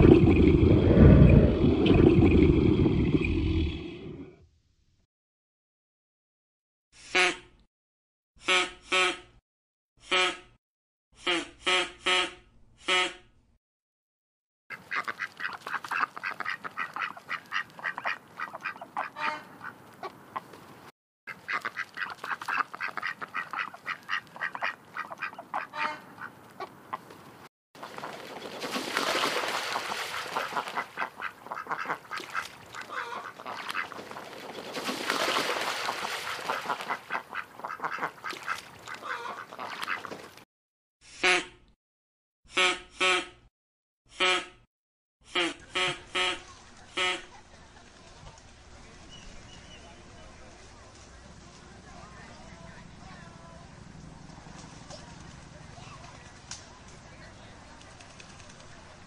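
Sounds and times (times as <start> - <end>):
ducks quacking: 14.7 - 20.5, 21.3 - 27.0, 29.6 - 34.0, 35.7 - 40.2
goose calling: 21.3 - 26.7, 30.4 - 33.9, 36.5 - 40.1.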